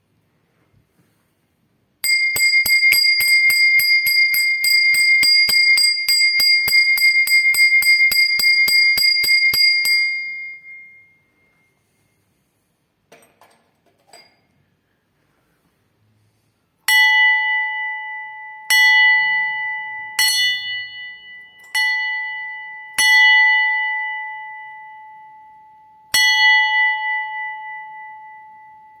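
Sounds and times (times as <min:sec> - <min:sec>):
bell ringing: 0:02.0 - 0:11.7.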